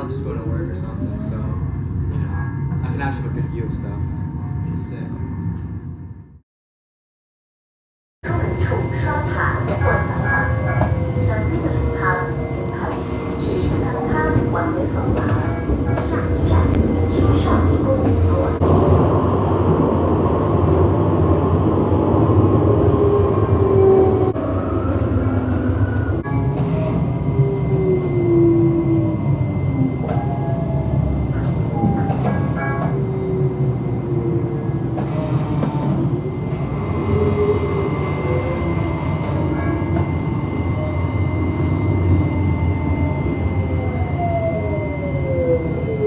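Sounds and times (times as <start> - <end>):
tram motors and wheels rumbling: 0.0 - 6.4, 8.2 - 46.0
whine gliding in pitch: 36.3 - 46.0.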